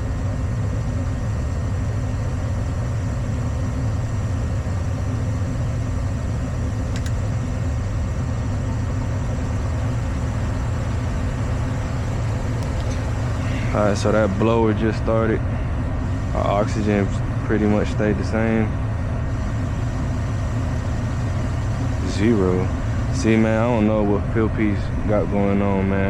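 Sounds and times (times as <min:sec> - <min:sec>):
furnace humming: 0:00.0 - 0:26.0
faint click: 0:06.9 - 0:07.2.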